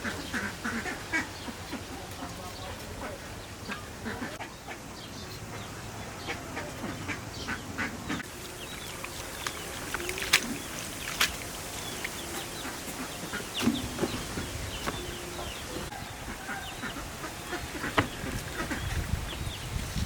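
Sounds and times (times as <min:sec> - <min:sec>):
farmyard birds calling: 0:00.0 - 0:20.0.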